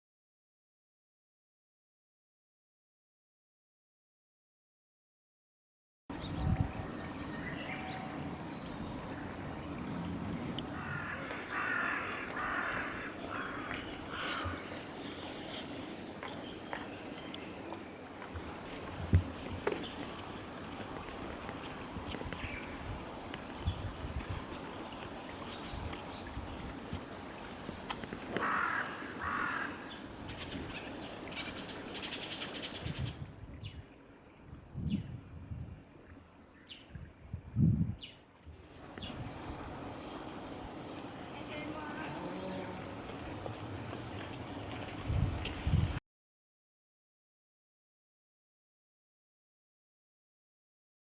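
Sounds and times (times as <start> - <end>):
crow cawing: 10.8 - 14.8, 28.4 - 29.9
small bird chirping: 42.9 - 45.8.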